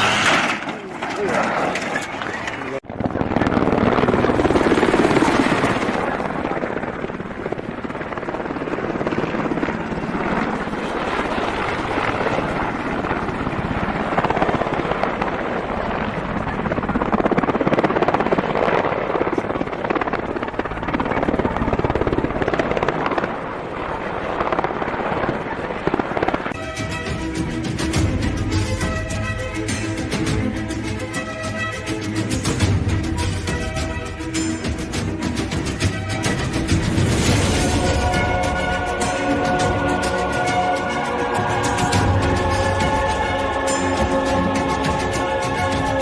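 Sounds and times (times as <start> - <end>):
helicopter rumbling: 0.0 - 46.0
music: 26.5 - 46.0.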